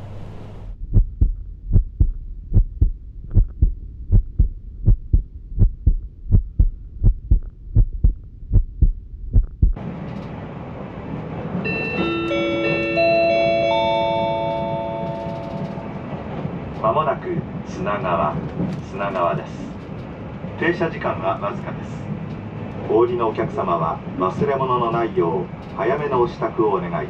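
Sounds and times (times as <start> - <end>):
train running noise: 0.0 - 27.0
electronic multi-note chime: 11.7 - 16.0.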